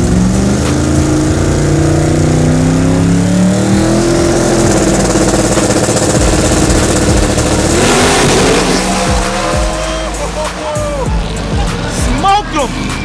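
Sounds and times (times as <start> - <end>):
drag racing cars at full throttle: 0.0 - 13.0.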